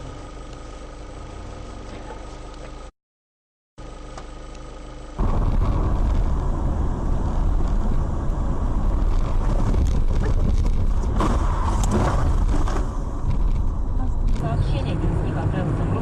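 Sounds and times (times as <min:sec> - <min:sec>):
steady hum: 0:03.8 - 0:16.0
vehicle road and wind rumble: 0:05.2 - 0:16.0.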